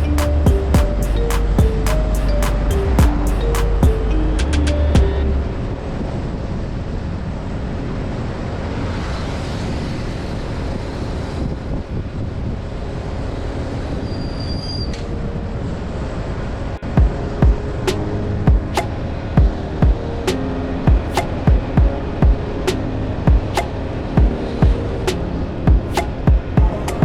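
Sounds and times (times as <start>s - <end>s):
road noise: 0.0s - 14.1s.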